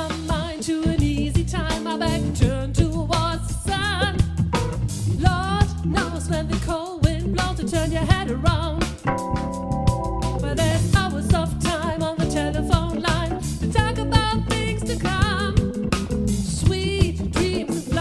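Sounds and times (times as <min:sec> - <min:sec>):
bass guitar: 0:00.0 - 0:18.0
drum kit: 0:00.0 - 0:18.0
wavering lead melody: 0:09.0 - 0:11.1.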